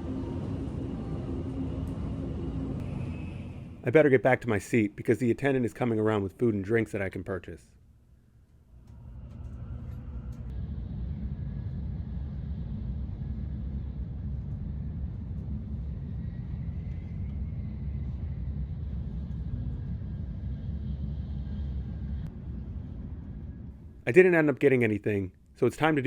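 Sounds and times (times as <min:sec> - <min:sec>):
train rumbling at speed: 0:00.0 - 0:04.3, 0:08.9 - 0:24.2.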